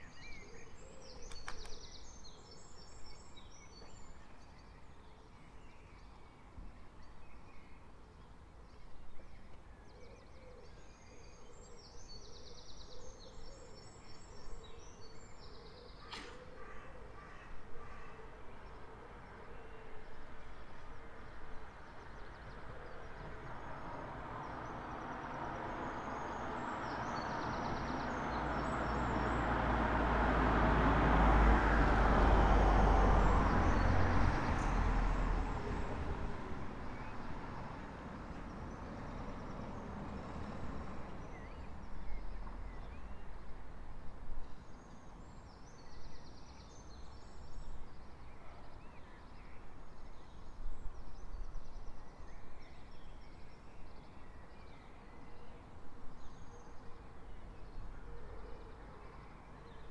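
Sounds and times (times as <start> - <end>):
faint birdsong: 0.0 - 59.9
car passing: 23.4 - 43.9.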